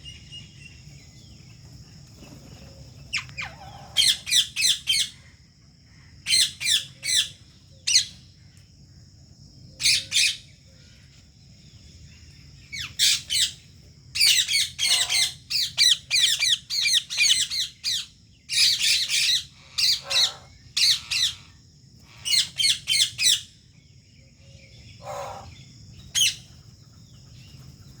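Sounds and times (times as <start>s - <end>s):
parakeets squawking: 14.2s - 21.4s.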